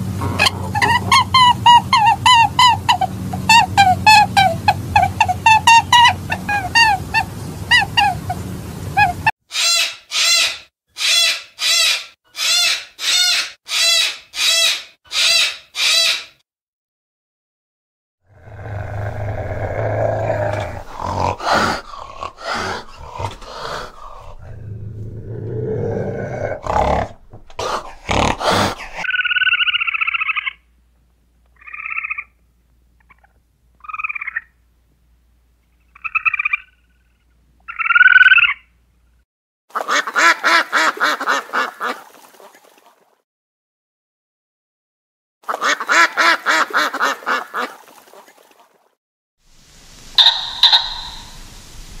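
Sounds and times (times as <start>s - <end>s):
ducks honking: 0.4s - 8.4s, 20.9s - 24.4s, 50.1s - 52.0s
squirrel squeaky calls: 0.7s - 8.4s, 9.0s - 16.4s, 50.2s - 51.7s
cat growling and snarling: 18.3s - 29.1s.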